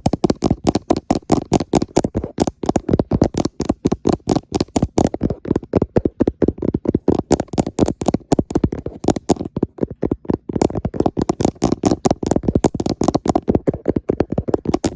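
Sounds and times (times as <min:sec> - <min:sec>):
fingertips tapping on camera: 0:00.0 - 0:14.9.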